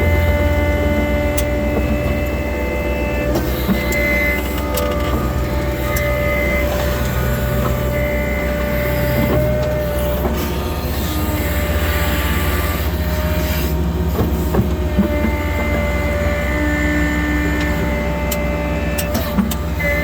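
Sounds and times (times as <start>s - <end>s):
high steady whine: 0.0s - 14.1s
diesel engine hum: 0.0s - 20.0s.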